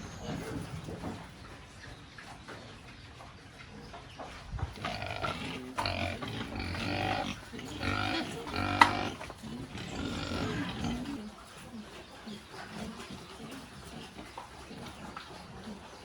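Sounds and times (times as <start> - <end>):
pigs calling: 4.7 - 16.0.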